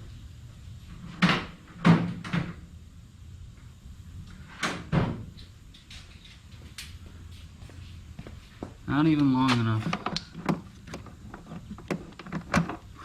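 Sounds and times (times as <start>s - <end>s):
hard plastic parts knocking: 9.5s - 12.8s.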